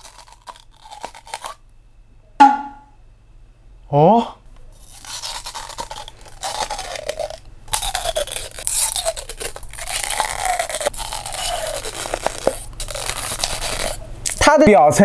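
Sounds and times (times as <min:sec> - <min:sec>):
plastic bottle crunching bites: 0:00.0 - 0:01.6, 0:04.8 - 0:14.4.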